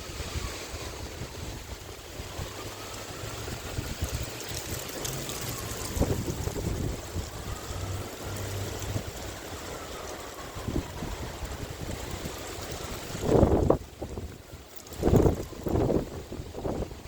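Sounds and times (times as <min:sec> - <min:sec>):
river rushing: 0:00.0 - 0:14.1
wind buffeting microphone: 0:00.0 - 0:17.0.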